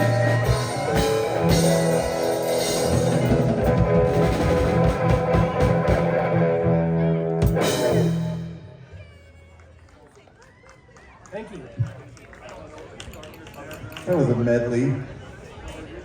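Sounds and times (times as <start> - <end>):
drum kit: 0.0 - 6.6, 7.3 - 8.6
electric guitar: 0.0 - 8.8.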